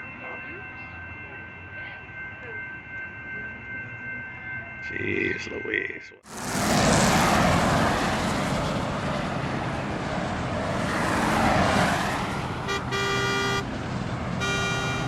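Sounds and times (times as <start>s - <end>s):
road traffic rushing: 6.2s - 15.0s
vehicle horn: 12.6s - 13.7s, 14.4s - 15.0s.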